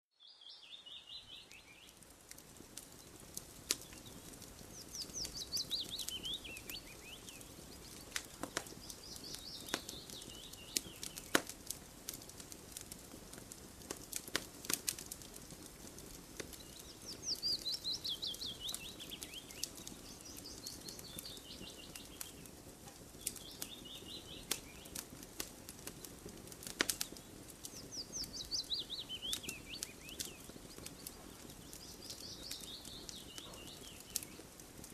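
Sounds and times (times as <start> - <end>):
campfire crackling and popping: 0.8 - 34.9
songbird trilling: 5.0 - 7.5, 17.1 - 22.2.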